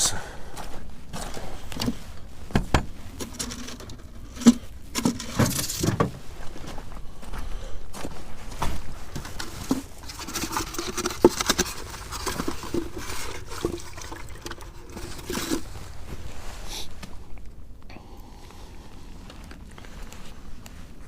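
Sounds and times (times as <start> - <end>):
water splashing in bucket: 9.7 - 15.7.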